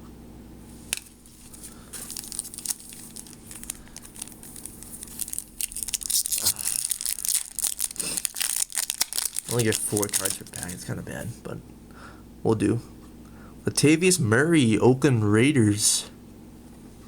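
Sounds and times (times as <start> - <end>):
wrapper crinkling and tearing: 0.9 - 11.0.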